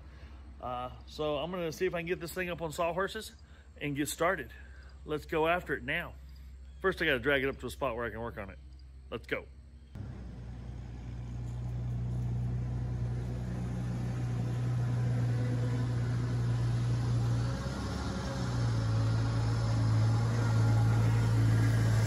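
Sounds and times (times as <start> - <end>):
car engine running: 10.0 - 22.0.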